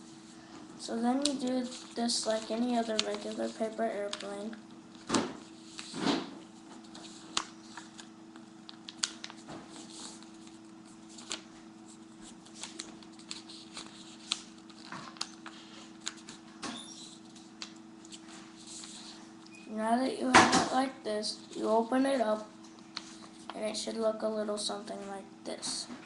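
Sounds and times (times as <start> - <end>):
steady low hum: 0.0 - 26.0
paper being folded and creased: 1.1 - 6.0, 6.7 - 19.2.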